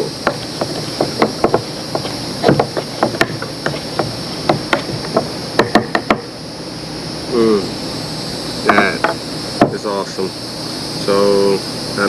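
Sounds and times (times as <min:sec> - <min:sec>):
insects droning: 0:00.0 - 0:12.0
sharp knocks and taps: 0:00.2 - 0:06.3, 0:08.7 - 0:09.8.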